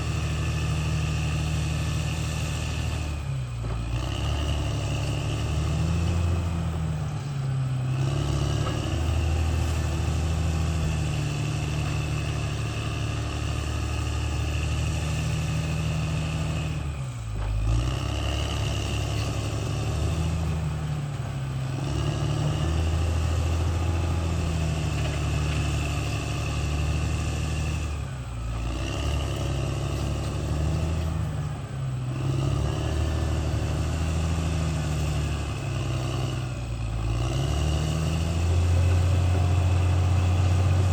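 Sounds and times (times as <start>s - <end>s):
bulldozer diesel engine: 0.0s - 40.9s.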